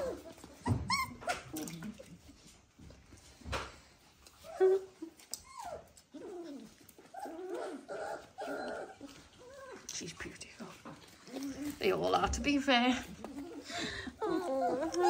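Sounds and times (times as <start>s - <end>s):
puppies whimpering and yelping: 0.0s - 2.5s, 3.9s - 10.1s, 11.0s - 12.0s, 13.0s - 15.0s.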